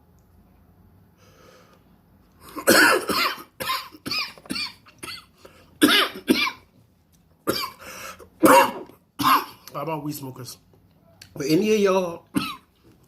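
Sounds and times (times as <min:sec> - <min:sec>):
person coughing harshly: 0:02.5 - 0:06.6, 0:07.5 - 0:07.8, 0:08.4 - 0:09.6, 0:12.3 - 0:12.7.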